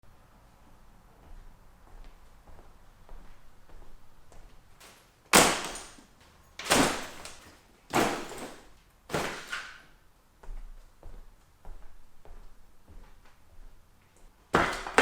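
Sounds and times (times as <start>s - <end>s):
sudden loud impacts: 5.3s - 6.0s.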